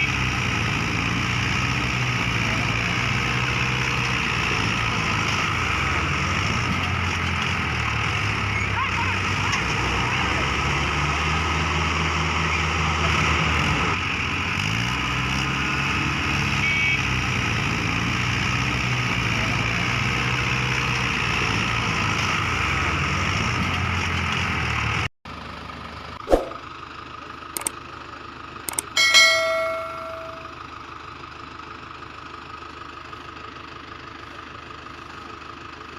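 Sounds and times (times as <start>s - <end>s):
tractor engine running: 0.0s - 35.9s
sharp clicks: 27.6s - 27.8s, 28.7s - 29.0s
short ringing ding: 28.8s - 30.6s.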